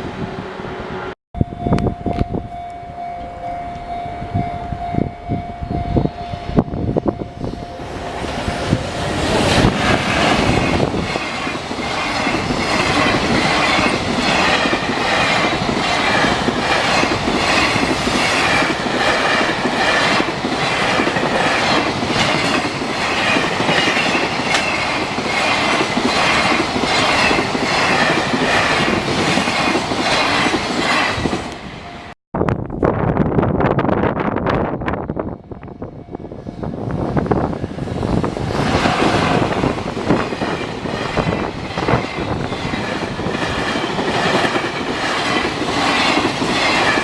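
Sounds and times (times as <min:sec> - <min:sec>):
steady tone: 0:00.7 - 0:28.9
train wheels clacking on rails: 0:07.9 - 0:31.6, 0:37.5 - 0:47.0.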